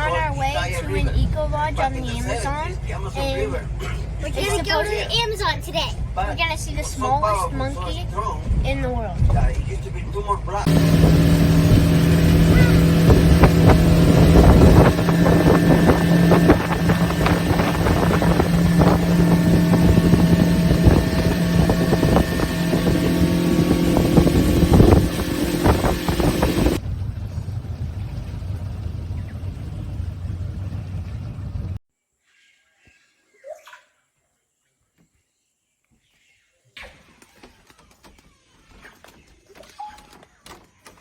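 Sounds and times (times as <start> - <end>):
knocks and buffets: 10.7 - 31.8
motorboat engine running: 10.7 - 31.8.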